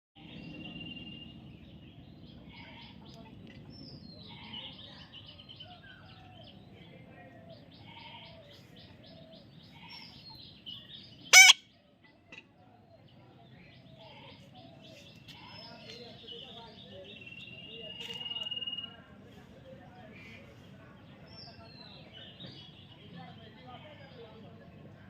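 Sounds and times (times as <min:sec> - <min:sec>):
parrot chirping: 0:11.3 - 0:11.6
parrot squawk: 0:11.3 - 0:11.6.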